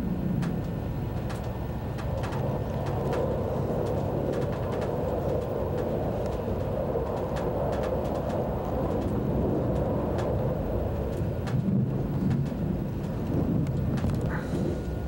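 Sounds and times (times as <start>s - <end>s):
train carriage rumble and hum: 0.0s - 15.0s.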